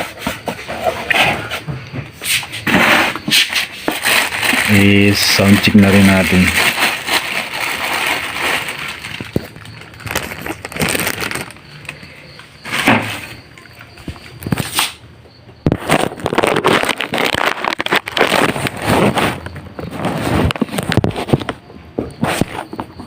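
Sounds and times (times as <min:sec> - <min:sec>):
packaging rustling and crinkling: 0:02.6 - 0:12.0, 0:15.7 - 0:21.6.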